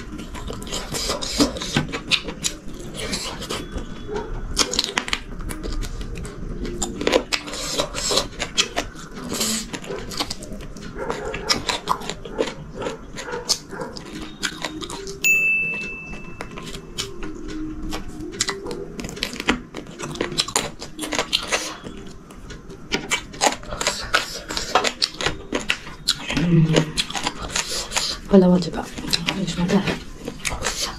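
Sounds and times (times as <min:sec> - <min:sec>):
person chewing with wet clicks: 0:00.0 - 0:30.9
steady high beep: 0:15.2 - 0:16.7.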